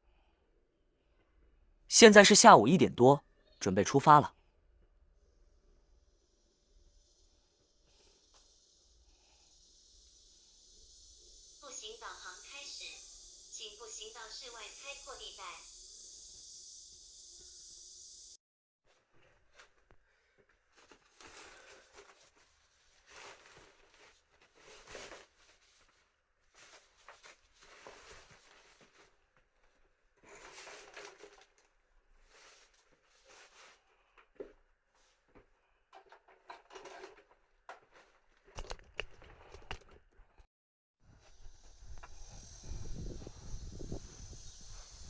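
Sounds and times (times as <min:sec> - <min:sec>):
steady hiss: 0:05.8 - 0:18.4, 0:41.1 - 0:45.0
faint rustling and scuffing: 0:20.5 - 0:31.5, 0:32.1 - 0:38.6.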